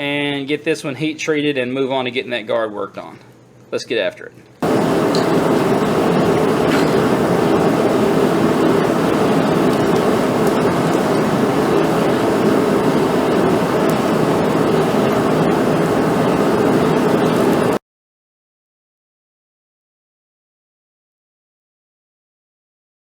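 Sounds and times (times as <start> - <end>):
forge rushing noise: 4.6 - 17.8.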